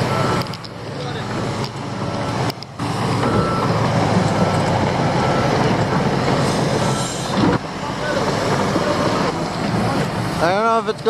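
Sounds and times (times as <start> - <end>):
reversing alarm beeping: 0.0 - 1.1, 2.0 - 5.9, 6.7 - 7.5
diesel engine under load: 0.0 - 11.0.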